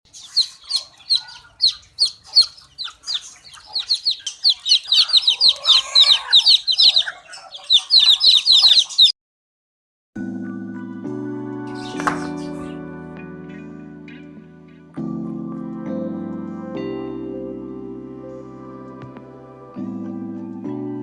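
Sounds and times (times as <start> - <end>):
chicks peeping: 0.1 - 9.2, 11.7 - 12.9
music: 10.2 - 21.0.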